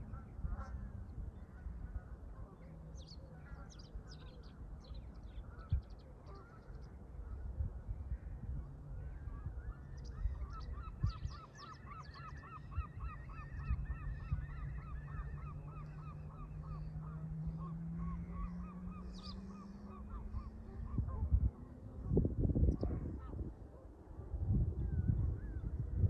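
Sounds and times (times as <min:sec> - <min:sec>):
low hum rising in pitch: 0:13.6 - 0:23.1.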